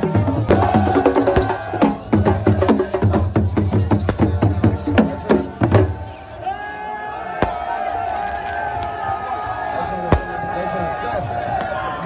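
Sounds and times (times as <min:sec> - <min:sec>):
fast dense drumming: 0:00.0 - 0:06.1.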